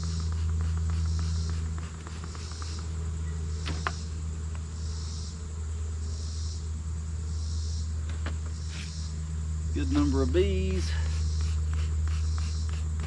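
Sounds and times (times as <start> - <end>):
honeybees humming: 0.0 - 13.0
insect chirping: 0.0 - 13.0.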